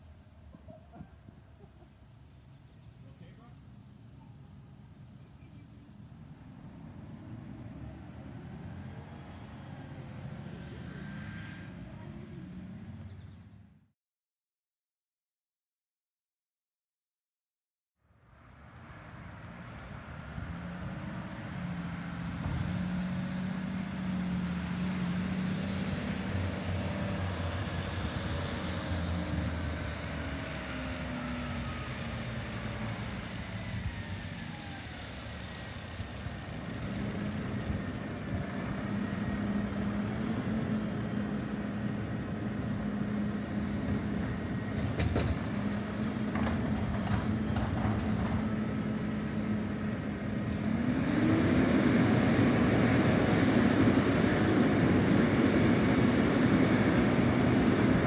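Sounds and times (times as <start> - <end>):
garbage truck engine running: 29.1 - 58.0.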